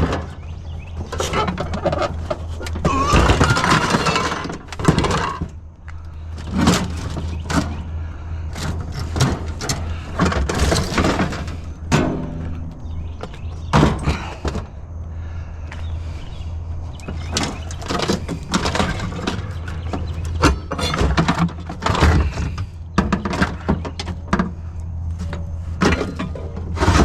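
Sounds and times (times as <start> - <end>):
scrap knocking and clattering: 0.0 - 5.6, 6.4 - 7.9, 8.5 - 14.8, 17.0 - 27.0
steady low hum: 0.0 - 27.0.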